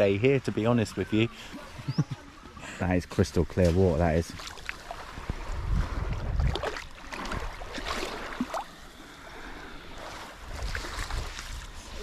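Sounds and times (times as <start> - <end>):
water sloshing as someone wades: 3.4 - 12.0.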